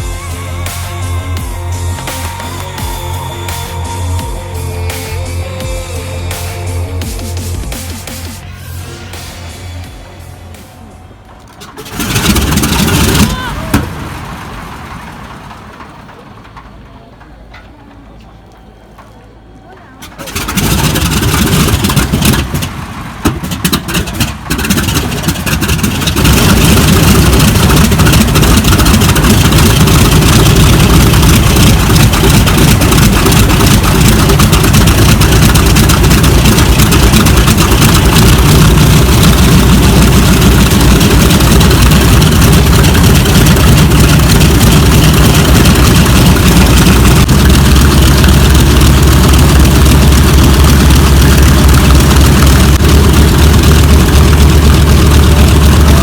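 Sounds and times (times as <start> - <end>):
radial aircraft engine rumbling: 0.0 - 56.0.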